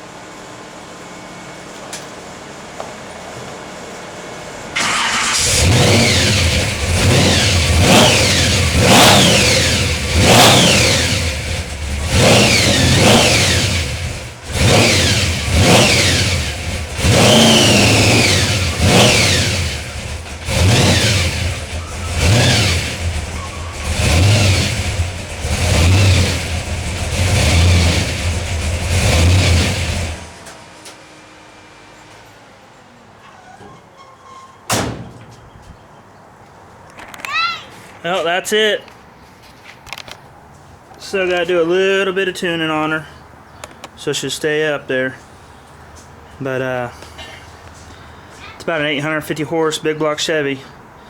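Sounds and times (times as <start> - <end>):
supercharger whine: 4.3 - 32.7
vee eight engine revving: 4.7 - 30.5.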